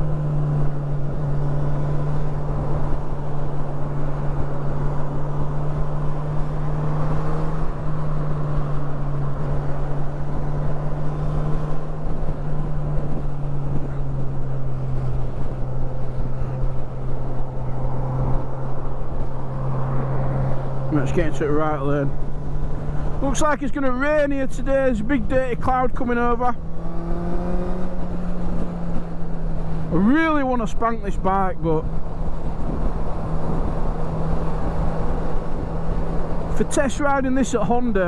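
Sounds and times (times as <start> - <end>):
motorcycle engine droning: 24.4 - 36.8.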